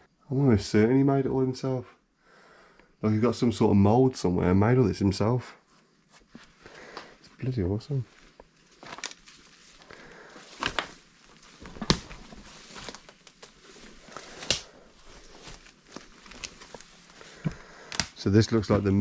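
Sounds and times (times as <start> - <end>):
faint hiss: 0.0 - 8.7
footsteps crunching on debris: 8.0 - 19.0.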